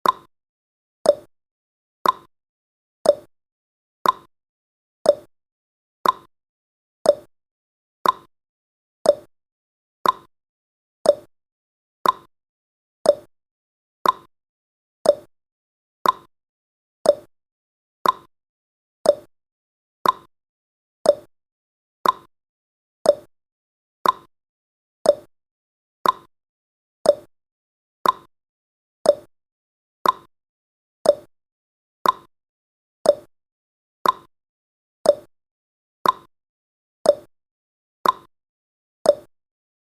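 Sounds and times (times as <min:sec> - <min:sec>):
timer ticking clicks: 0:00.0 - 0:00.3, 0:01.0 - 0:01.3, 0:02.0 - 0:02.3, 0:03.0 - 0:03.3, 0:04.0 - 0:04.3, 0:05.0 - 0:05.3, 0:06.0 - 0:06.3, 0:07.0 - 0:07.3, 0:08.0 - 0:08.3, 0:09.0 - 0:09.3, 0:10.0 - 0:10.3, 0:11.0 - 0:11.3, 0:12.0 - 0:12.3, 0:13.0 - 0:13.3, 0:14.0 - 0:14.3, 0:15.0 - 0:15.3, 0:16.0 - 0:16.3, 0:17.0 - 0:17.3, 0:18.0 - 0:18.3, 0:19.0 - 0:19.3, 0:20.0 - 0:20.3, 0:21.0 - 0:21.3, 0:22.0 - 0:22.3, 0:23.0 - 0:23.3, 0:24.0 - 0:24.3, 0:25.0 - 0:25.3, 0:26.0 - 0:26.3, 0:27.0 - 0:27.3, 0:28.0 - 0:28.3, 0:29.0 - 0:29.3, 0:30.0 - 0:30.3, 0:31.0 - 0:31.3, 0:32.0 - 0:32.3, 0:33.0 - 0:33.3, 0:34.0 - 0:34.3, 0:35.0 - 0:35.3, 0:36.0 - 0:36.3, 0:37.0 - 0:37.3, 0:38.0 - 0:38.3, 0:39.0 - 0:39.3.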